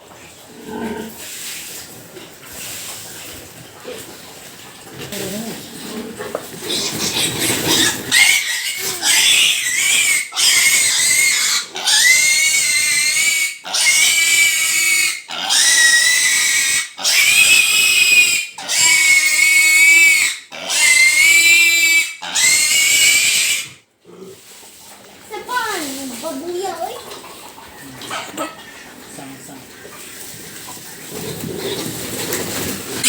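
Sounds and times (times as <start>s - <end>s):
piglet squealing: 6.7s - 23.8s.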